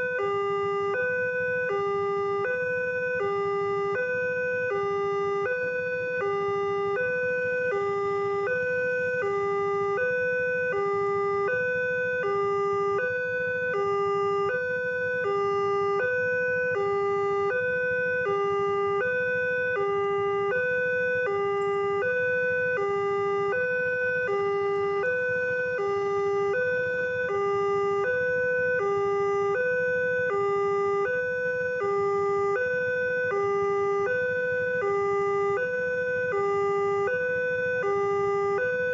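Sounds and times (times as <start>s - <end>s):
two-tone electronic crossing alarm: 0.0s - 38.9s.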